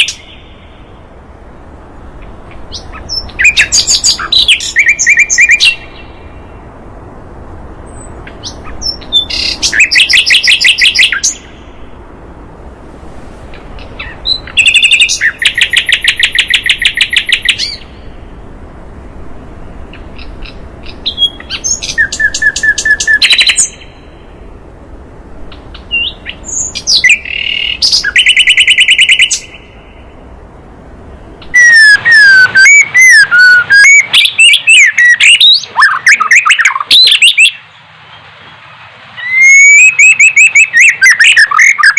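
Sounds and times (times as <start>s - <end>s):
whistled birdsong sliding in pitch: 0.0s - 0.9s, 2.6s - 6.6s, 7.9s - 11.8s, 13.8s - 18.2s, 19.8s - 24.3s, 25.5s - 30.2s, 31.4s - 41.9s
fast repeated high bird notes: 39.2s - 41.9s.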